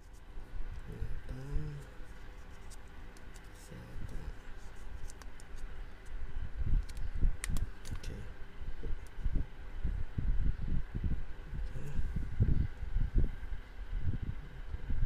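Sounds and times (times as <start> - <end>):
tape clicking and scratching: 1.7 - 6.2, 6.8 - 8.1
low rumble: 6.2 - 15.0.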